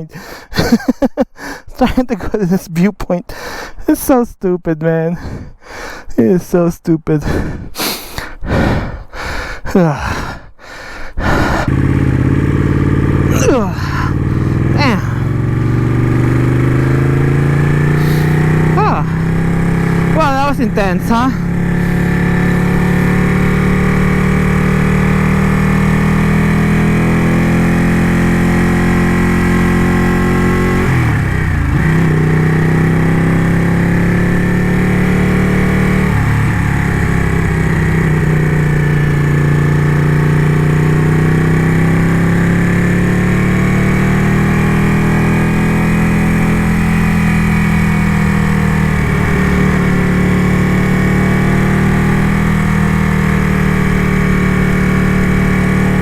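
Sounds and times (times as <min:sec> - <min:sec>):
motorcycle engine running: 0:11.2 - 0:56.0.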